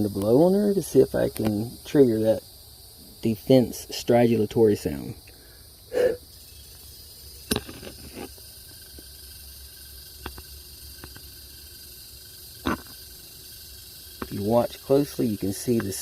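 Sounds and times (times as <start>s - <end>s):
insect high squeak: 0.0s - 16.0s
puff of breath: 5.3s - 6.2s.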